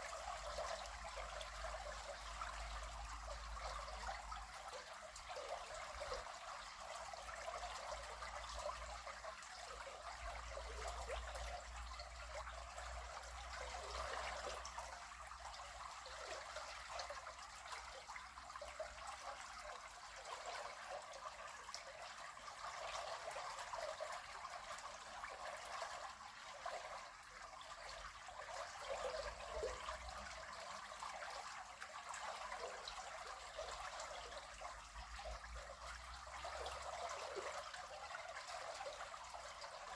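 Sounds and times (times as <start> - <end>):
river water babbling: 18.6 - 39.9.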